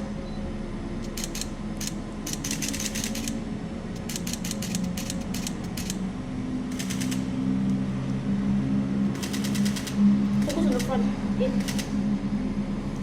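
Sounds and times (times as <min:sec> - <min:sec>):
steady low hum: 0:00.0 - 0:13.0
camera shutter rapid clicks: 0:01.1 - 0:03.4, 0:04.0 - 0:06.0, 0:06.7 - 0:07.3, 0:09.2 - 0:10.9, 0:11.6 - 0:11.9.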